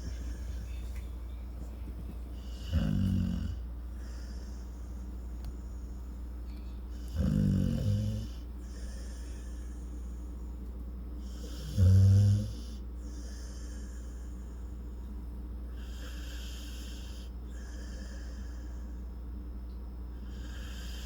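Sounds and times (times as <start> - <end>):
dog snoring: 2.4 - 4.5, 6.9 - 9.5, 11.2 - 14.1, 15.7 - 18.6, 20.2 - 21.0.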